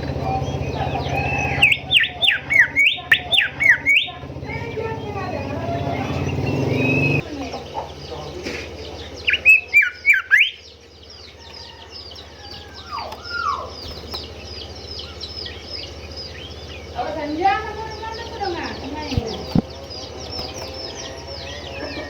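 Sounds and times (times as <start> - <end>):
bird slurred whistles: 0.2 - 4.2, 5.4 - 7.2, 9.2 - 10.7.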